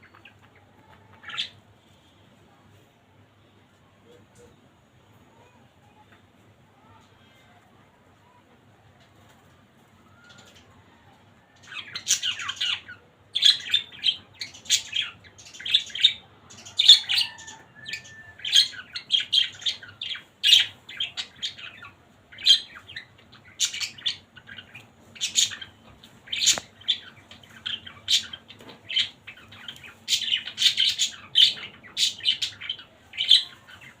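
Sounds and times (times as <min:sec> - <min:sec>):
budgerigars chirping and chattering: 0:11.6 - 0:34.0.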